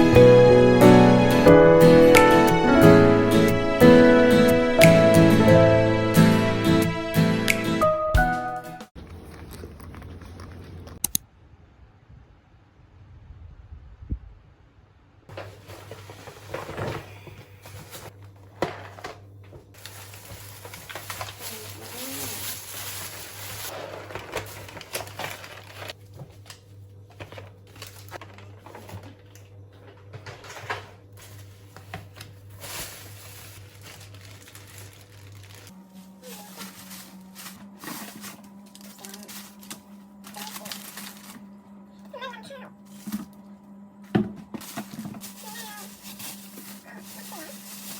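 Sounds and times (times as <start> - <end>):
crinkling and rustling handling: 9.0 - 11.0, 15.3 - 47.9
steady low hum: 26.0 - 47.9.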